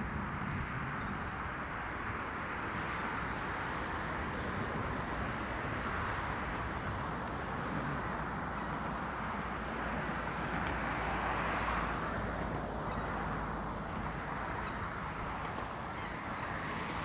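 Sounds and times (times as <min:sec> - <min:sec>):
outdoor background roar: 0:00.0 - 0:17.0.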